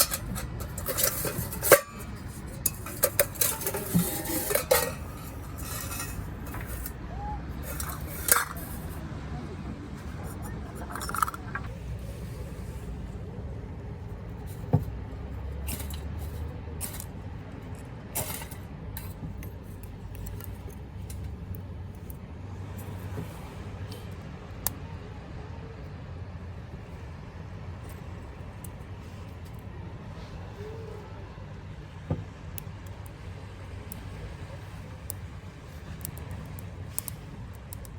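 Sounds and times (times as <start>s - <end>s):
wood fire crackling: 0.0s - 9.2s, 9.8s - 24.8s, 32.5s - 37.9s.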